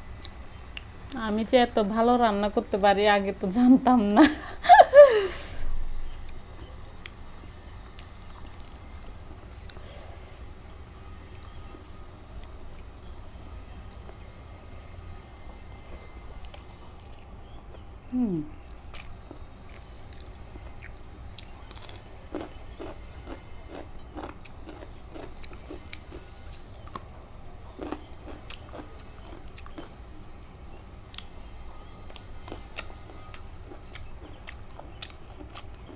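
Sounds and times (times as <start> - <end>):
wet chewing sounds: 6.1 - 17.9, 18.6 - 31.4, 32.0 - 35.9
eating clicks and smacks: 33.7 - 35.9.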